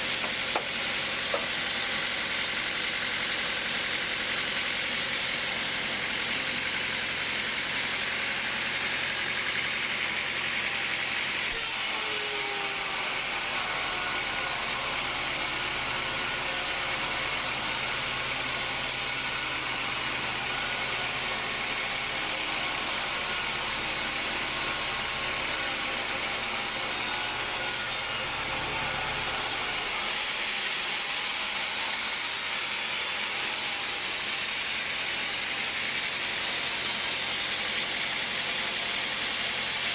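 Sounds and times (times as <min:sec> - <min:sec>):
sawmill machinery hum: 0:00.0 - 0:39.9.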